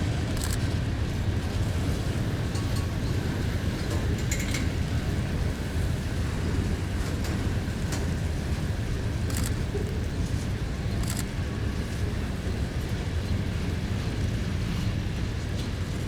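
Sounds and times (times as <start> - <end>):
train rumbling past: 0.0 - 16.0
sharp clicks: 9.3 - 9.6.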